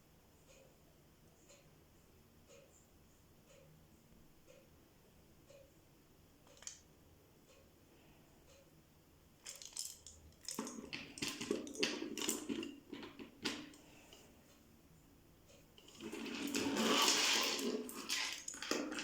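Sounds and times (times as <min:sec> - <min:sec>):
faint ticks: 0:00.4 - 0:00.8, 0:01.4 - 0:01.7, 0:02.4 - 0:04.7, 0:05.5 - 0:05.7.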